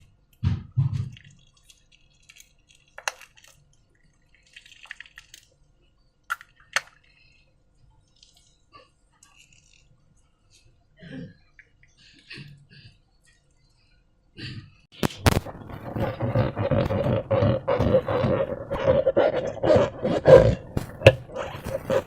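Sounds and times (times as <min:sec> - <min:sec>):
slime squelching and clicking: 0:00.9 - 0:05.6, 0:06.3 - 0:07.1, 0:15.0 - 0:22.0.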